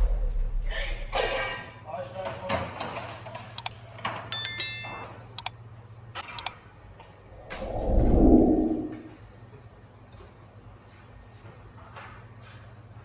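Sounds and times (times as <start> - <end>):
short metallic ring: 4.3 - 5.5
low rushing whoosh: 7.4 - 9.2.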